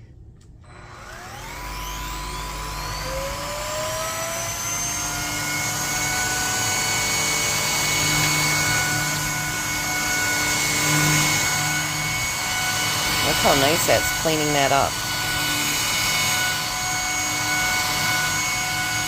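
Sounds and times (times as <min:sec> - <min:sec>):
vacuum cleaner motor whining: 0:00.0 - 0:19.0.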